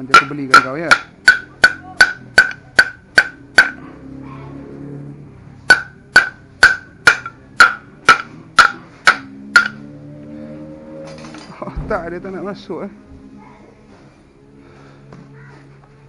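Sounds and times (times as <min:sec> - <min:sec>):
hammer tapping metal bearing: 0:00.0 - 0:03.8, 0:05.7 - 0:09.8.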